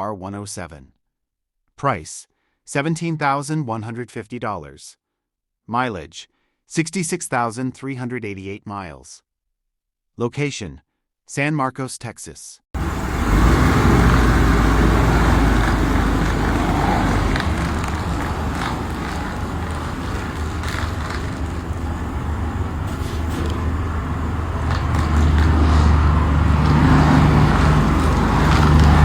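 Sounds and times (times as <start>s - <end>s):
car engine running: 12.8s - 29.0s.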